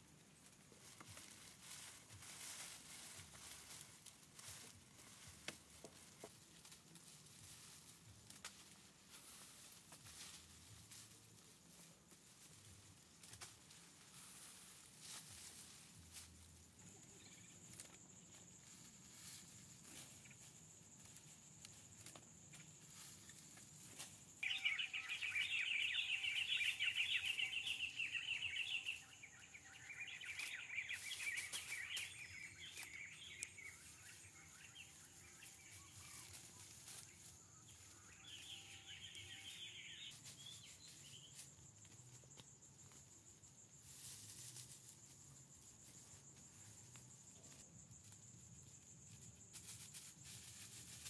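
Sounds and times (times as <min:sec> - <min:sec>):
rustles and clicks: 0:00.0 - 0:51.0
high insect whine: 0:14.1 - 0:51.0.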